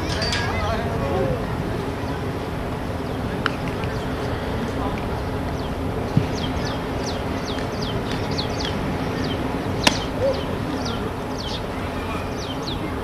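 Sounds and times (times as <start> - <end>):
bird chirping: 5.5 - 13.0.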